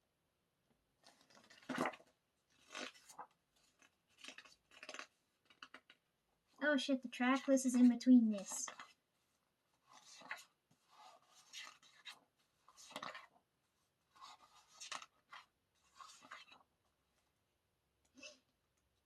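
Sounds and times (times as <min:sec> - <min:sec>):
paper pages turning: 0:01.0 - 0:06.0, 0:06.8 - 0:09.0, 0:09.8 - 0:13.3, 0:14.1 - 0:16.7.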